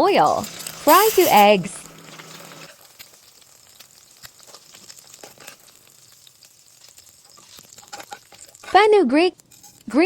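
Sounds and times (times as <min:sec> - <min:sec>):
eggs sizzling in a pan: 0:00.0 - 0:10.0
oil popping and crackling: 0:00.0 - 0:10.0.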